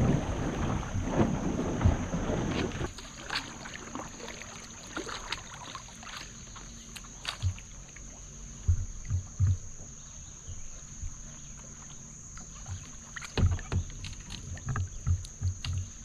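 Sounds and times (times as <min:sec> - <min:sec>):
hollow knocks on kayak hull: 0:00.6 - 0:02.9, 0:08.6 - 0:10.0, 0:12.6 - 0:16.0.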